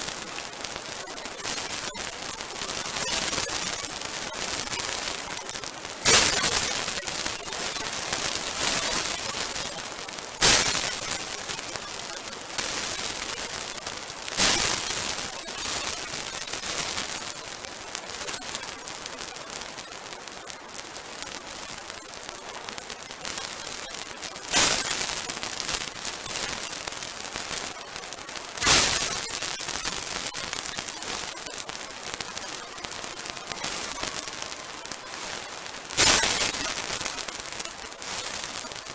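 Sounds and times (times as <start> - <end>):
bonfire crackling: 16.5 - 38.9
loud sharp pops: 35.9 - 37.3.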